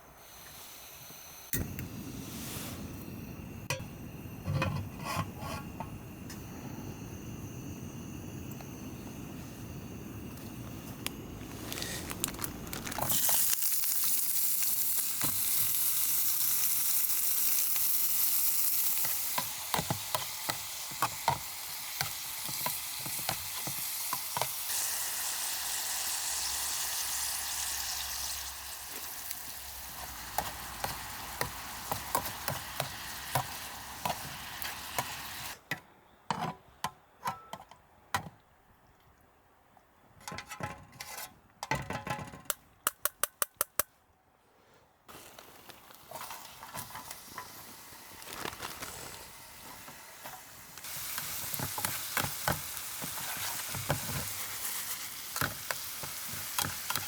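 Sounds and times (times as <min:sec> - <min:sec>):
food sizzling in a hot pan: 0:12.8 - 0:35.6, 0:49.0 - 0:57.0.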